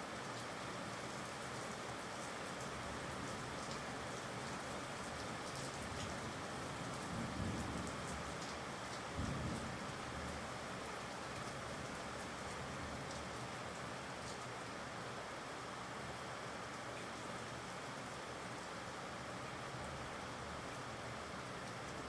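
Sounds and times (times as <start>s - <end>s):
heavy rain: 3.1s - 16.8s.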